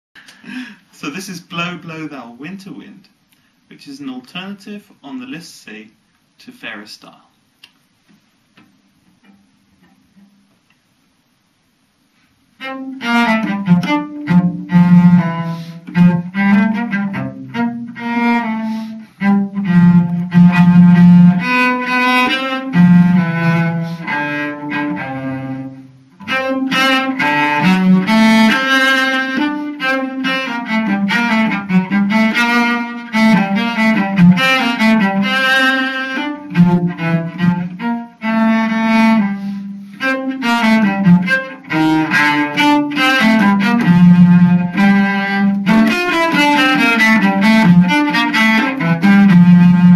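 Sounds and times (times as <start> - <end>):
cello melody of bowed notes: 12.5 - 49.9.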